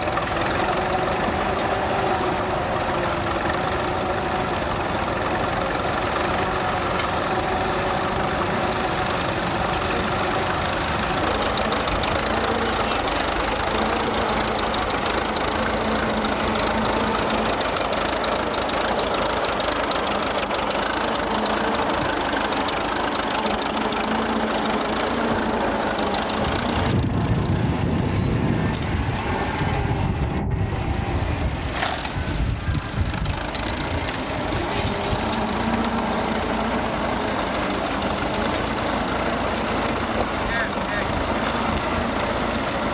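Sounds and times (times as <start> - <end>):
tractor engine running: 0.0 - 42.9
heavy low rumble: 24.3 - 37.3.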